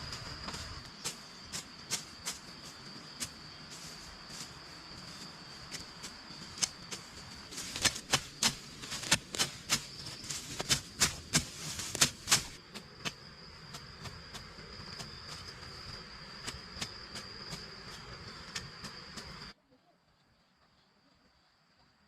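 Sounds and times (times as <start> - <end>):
high-pitched insect drone: 0.0 - 7.9.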